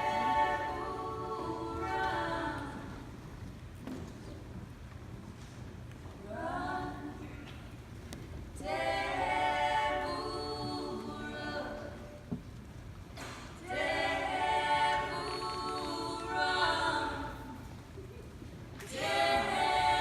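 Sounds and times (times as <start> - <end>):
women singing a cappella harmony: 0.0 - 3.3, 6.2 - 7.8, 8.6 - 12.3, 13.5 - 17.8, 18.8 - 20.0.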